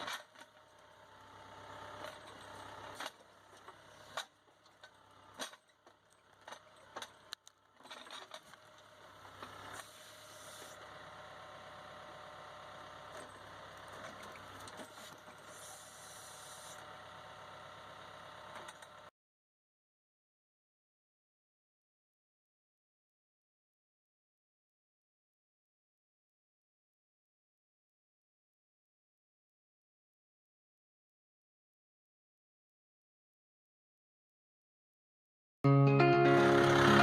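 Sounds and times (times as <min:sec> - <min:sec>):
faint diesel tractor engine: 0:00.0 - 0:19.1, 0:35.7 - 0:37.0.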